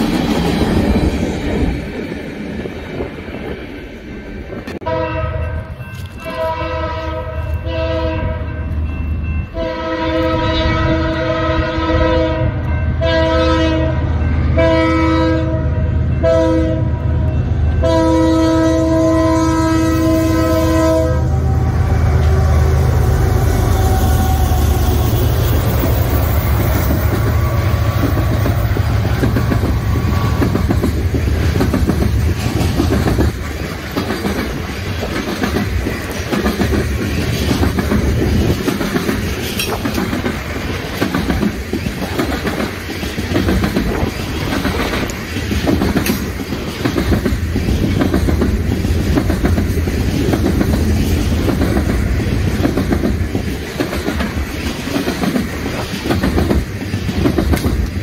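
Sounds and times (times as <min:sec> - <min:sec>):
train wheels clickety-clack: 0:00.0 - 0:04.9, 0:23.3 - 0:58.0
diesel locomotives rumbling: 0:00.0 - 0:58.0.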